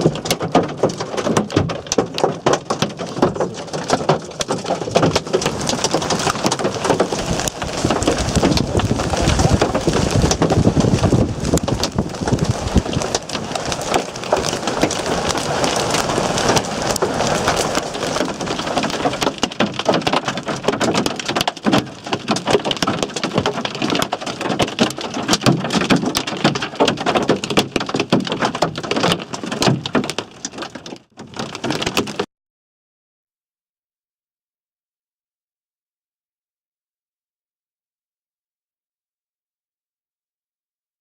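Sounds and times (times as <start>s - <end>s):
hailstones clattering: 0.0s - 32.2s
heavy rain hissing: 5.5s - 19.3s.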